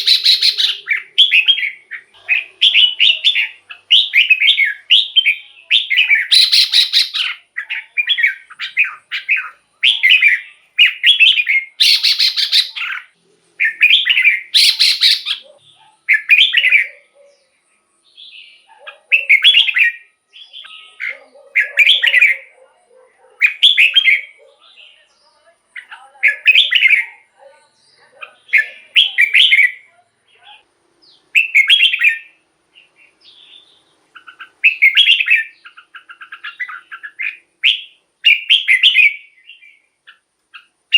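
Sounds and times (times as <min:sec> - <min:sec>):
bulbul warbling song: 0:00.0 - 0:17.2.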